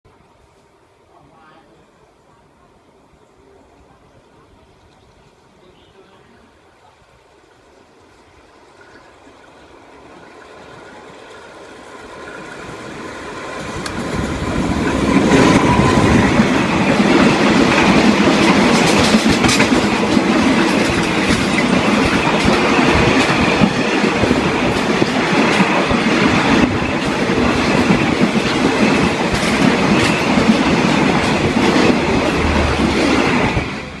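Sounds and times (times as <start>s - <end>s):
train wheels rumbling on rail: 10.1s - 34.0s
rail joint clicks: 11.2s - 34.0s.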